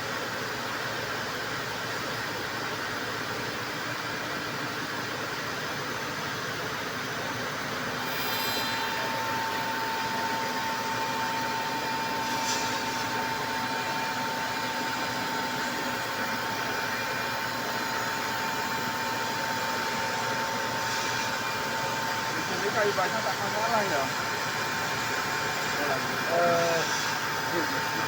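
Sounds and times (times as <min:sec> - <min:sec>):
wood router machining: 0:07.8 - 0:28.0
steady whine: 0:08.4 - 0:28.0.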